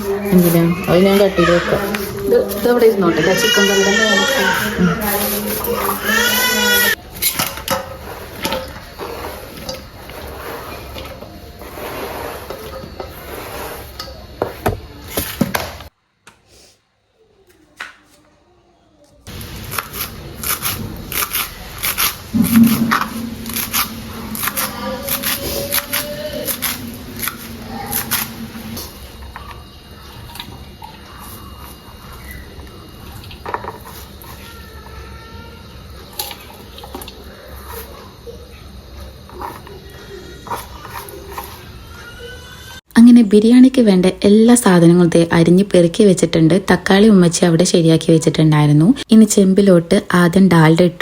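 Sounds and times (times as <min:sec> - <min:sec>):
knife and utensils clicking and scraping: 0:19.3 - 0:34.7, 0:39.2 - 0:41.8.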